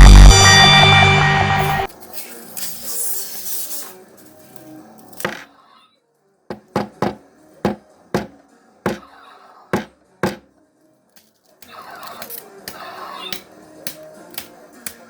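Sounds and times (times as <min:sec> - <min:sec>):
background music: 0:00.0 - 0:15.0
sharp knocks: 0:06.5 - 0:09.0, 0:09.8 - 0:10.5.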